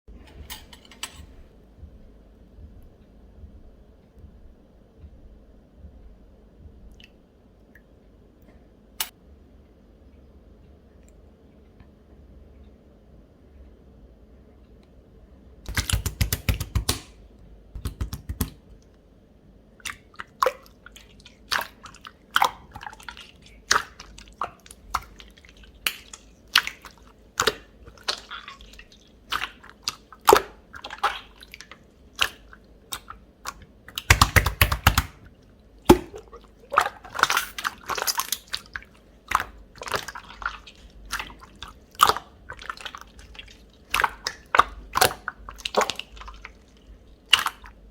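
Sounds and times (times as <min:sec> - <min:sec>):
slime squishing by hand: 0:15.7 - 0:18.7, 0:19.8 - 0:47.9
crackling slime squelches: 0:19.8 - 0:47.9.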